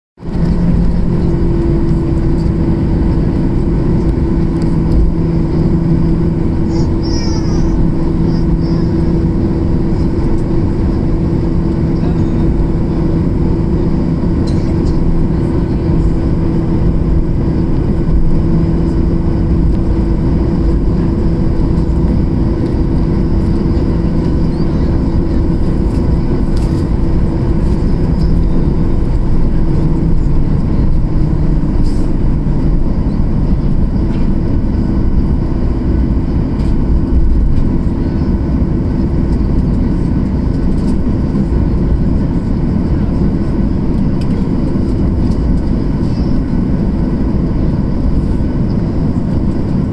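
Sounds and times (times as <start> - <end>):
jet engines in cabin: 0.2 - 49.9.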